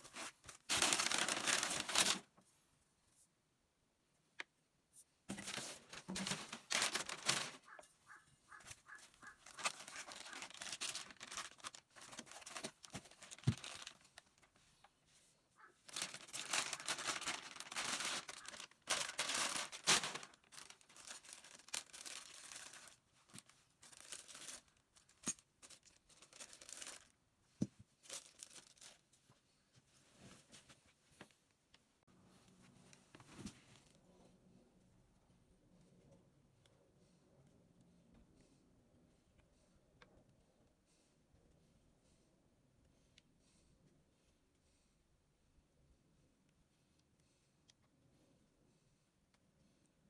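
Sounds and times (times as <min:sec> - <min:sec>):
packaging crinkling and tearing: 0:00.0 - 0:02.3, 0:05.3 - 0:07.8, 0:08.6 - 0:14.5, 0:15.9 - 0:27.2, 0:28.0 - 0:29.0.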